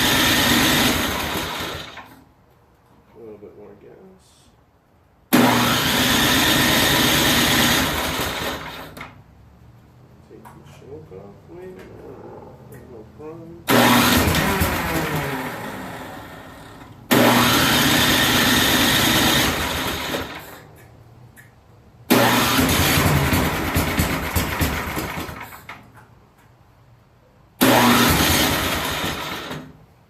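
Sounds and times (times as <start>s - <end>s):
engine cranking on electric starter: 0.0s - 2.2s, 5.3s - 9.2s, 13.7s - 20.7s, 22.1s - 26.0s, 27.6s - 29.8s.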